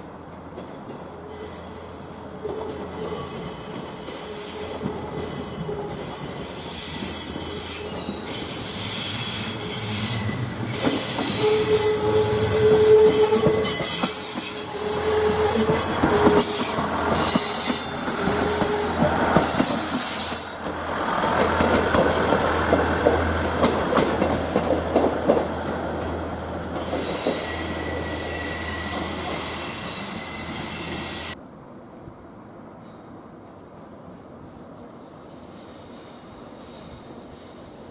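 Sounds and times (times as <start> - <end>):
train wheels squealing: 1.2 - 20.7, 25.8 - 31.4, 35.0 - 37.9.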